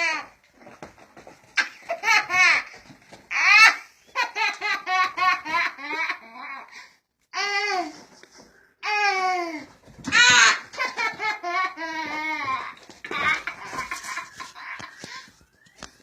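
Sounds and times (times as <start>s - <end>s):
child laughing: 1.6s - 6.7s, 8.8s - 15.2s.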